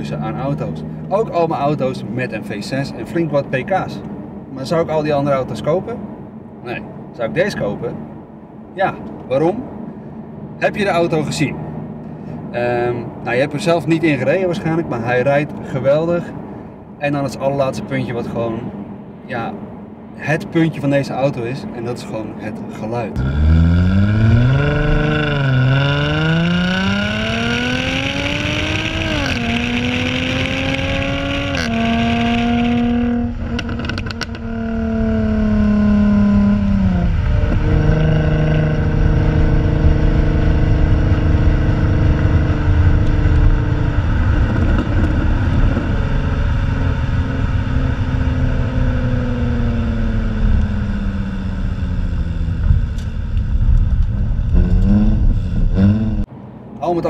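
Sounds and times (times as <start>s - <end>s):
car engine accelerating hard: 23.0s - 56.3s
exhaust crackles: 23.1s - 56.3s.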